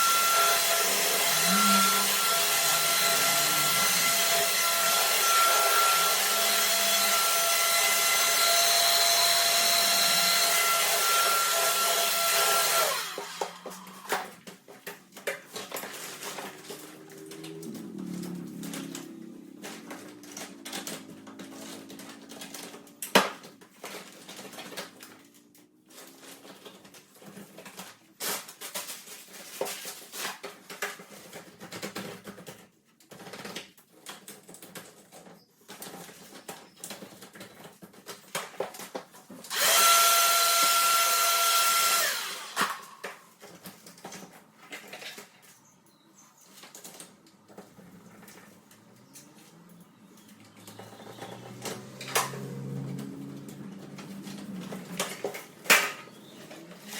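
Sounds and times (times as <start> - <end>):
electric blower whine: 0.0 - 14.3, 39.5 - 43.2, 51.1 - 55.4.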